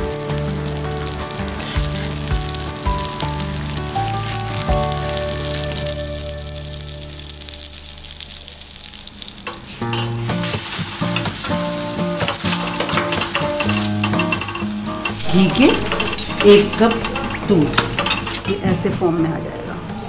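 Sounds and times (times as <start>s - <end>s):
background music with a beat: 0.0s - 6.2s
food sizzling on a hot griddle: 0.0s - 18.6s.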